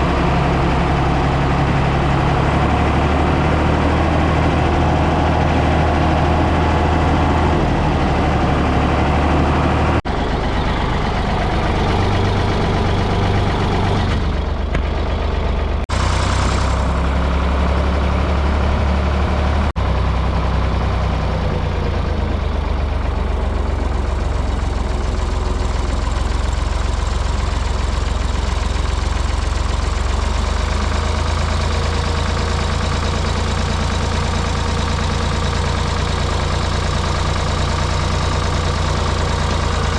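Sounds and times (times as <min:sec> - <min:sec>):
backhoe engine running: 0:00.0 - 0:39.9.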